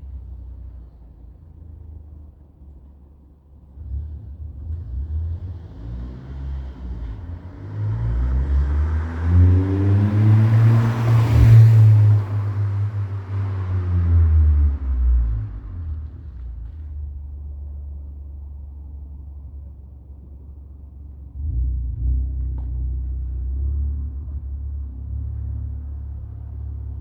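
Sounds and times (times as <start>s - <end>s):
car engine accelerating: 3.7s - 18.2s, 20.2s - 27.0s.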